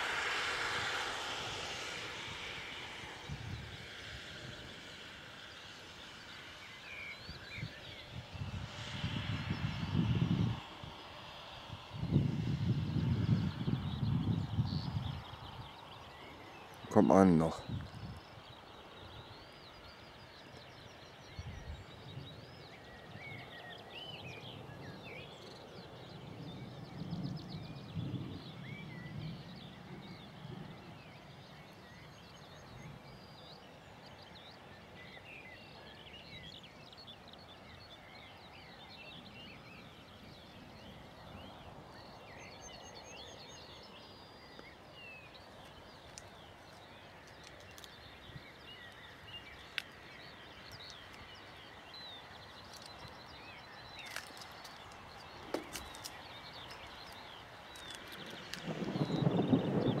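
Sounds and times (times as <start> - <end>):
songbirds chirping and singing: 12.1 - 60.0.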